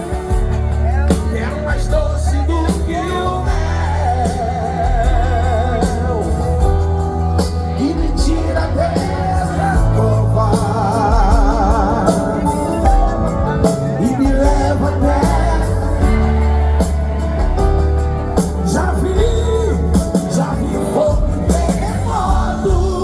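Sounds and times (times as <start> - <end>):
lead singer with wide vibrato: 0.0 - 23.0
worship band with bass and drums: 0.0 - 23.0.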